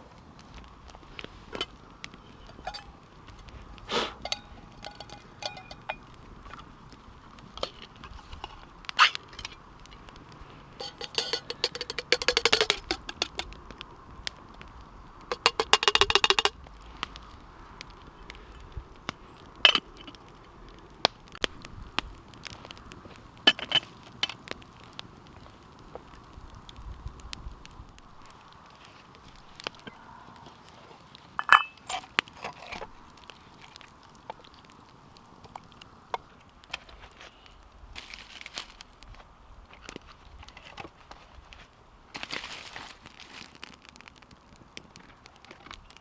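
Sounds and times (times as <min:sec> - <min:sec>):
camp gear clinks and scrapes: 0:02.4 - 0:06.6, 0:07.6 - 0:09.6, 0:10.8 - 0:13.4, 0:30.8 - 0:33.0
rapid clicking: 0:10.8 - 0:13.5.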